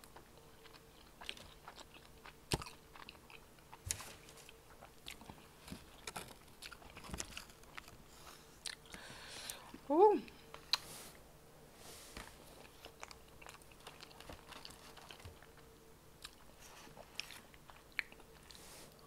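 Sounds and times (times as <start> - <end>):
crunching fried chicken: 0.6 - 8.9, 12.7 - 15.6.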